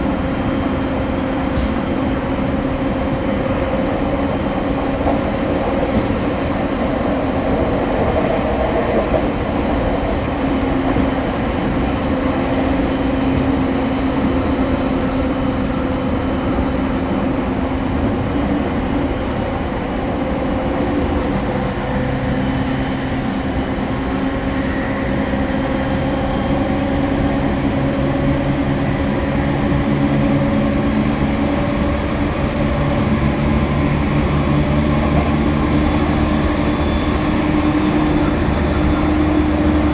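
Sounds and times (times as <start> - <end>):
train wheels rolling on rails: 0.0 - 39.9.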